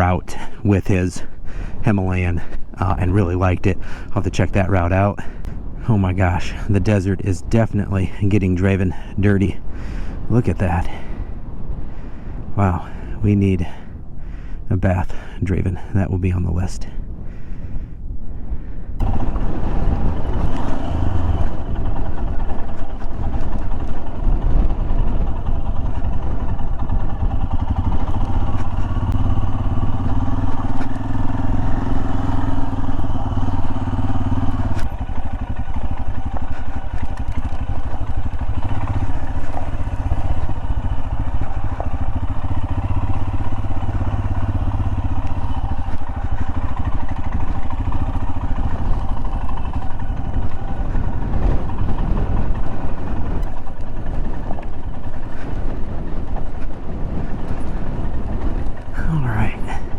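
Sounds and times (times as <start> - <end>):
motorcycle engine running: 19.0 - 59.9.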